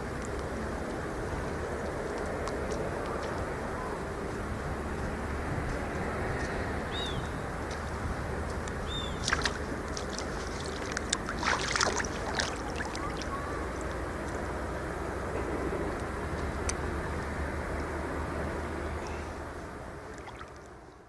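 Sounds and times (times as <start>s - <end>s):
low outdoor rumble: 0.0s - 21.0s
water splashing and sloshing: 7.7s - 14.1s, 19.8s - 21.0s
bird chirps: 8.9s - 9.3s.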